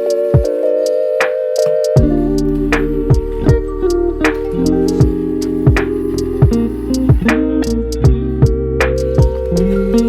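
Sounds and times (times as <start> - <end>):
drum machine beat: 0.0 - 0.6, 1.2 - 10.0
synthesizer chords: 0.0 - 10.0
deep bass line: 2.0 - 10.0.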